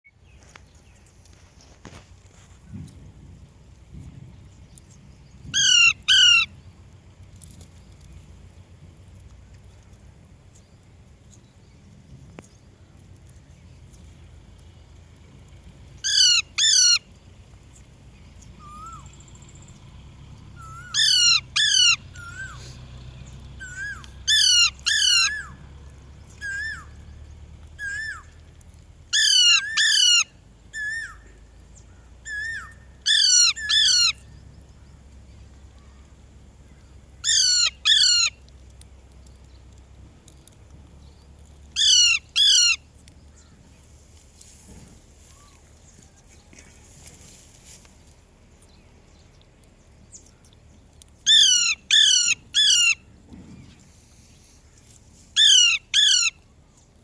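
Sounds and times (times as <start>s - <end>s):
parrot loud double calls: 5.5s - 6.5s, 16.0s - 17.0s, 20.6s - 22.6s, 23.6s - 25.6s, 29.1s - 31.2s, 32.3s - 34.2s.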